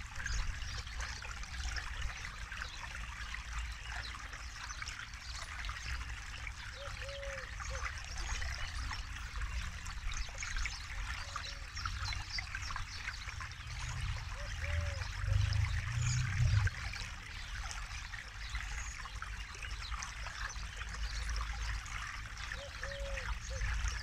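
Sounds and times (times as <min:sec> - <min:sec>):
river trickling over stones: 0:00.0 - 0:24.0
low rumble: 0:13.7 - 0:17.0.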